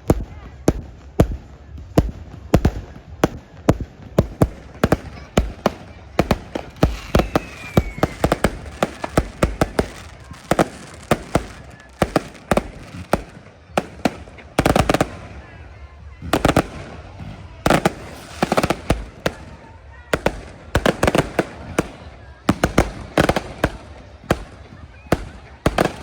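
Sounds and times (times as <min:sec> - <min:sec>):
fireworks bangs and cracks: 0:00.0 - 0:26.0
faint falling whistle: 0:07.0 - 0:08.3.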